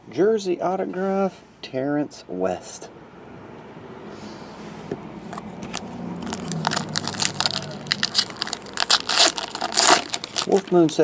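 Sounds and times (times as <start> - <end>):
plastic wrapper crinkling: 5.3 - 11.0.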